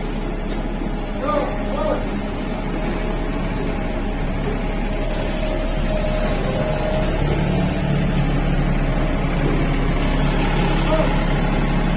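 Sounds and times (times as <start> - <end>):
engine humming: 0.0 - 11.9.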